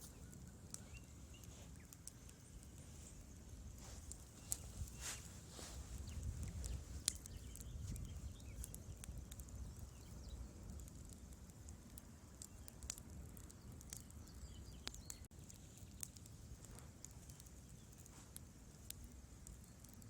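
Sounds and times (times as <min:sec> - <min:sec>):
low rumble of flames: 0:00.0 - 0:20.0
wood fire crackling and popping: 0:00.0 - 0:20.0.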